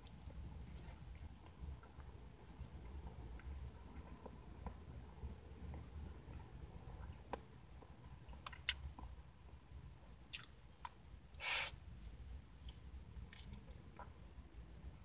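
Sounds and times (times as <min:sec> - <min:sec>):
low steady hum: 0:00.0 - 0:15.0
lip smacks and clicks: 0:10.3 - 0:11.0
quiet chewing: 0:11.9 - 0:15.0.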